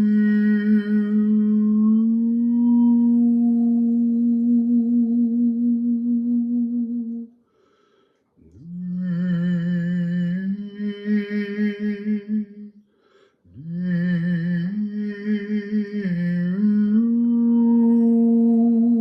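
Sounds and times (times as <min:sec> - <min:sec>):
man humming wordless melody: 0:00.0 - 0:07.3, 0:13.5 - 0:19.0
breath: 0:07.4 - 0:08.4, 0:12.8 - 0:13.5.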